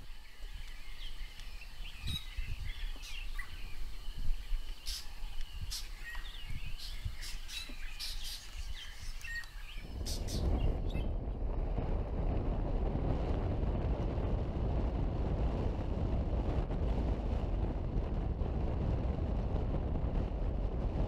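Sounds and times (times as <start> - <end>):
birds chirping: 0.0 - 11.2
wind rumble on microphone: 0.0 - 21.0.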